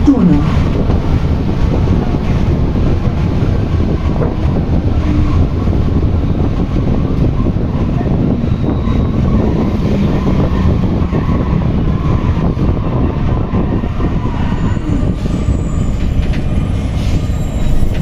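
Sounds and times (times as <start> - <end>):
low hum: 0.0 - 1.4
metro train interior rumble: 0.0 - 18.0.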